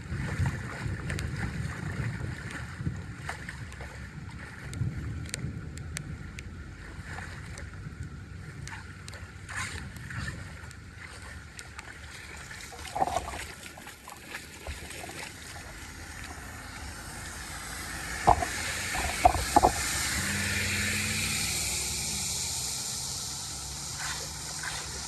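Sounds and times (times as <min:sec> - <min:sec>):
water rushing and splashing: 0:00.0 - 0:05.4, 0:06.4 - 0:25.0
low steady hum: 0:00.0 - 0:25.0
sharp knocks: 0:18.3 - 0:19.9.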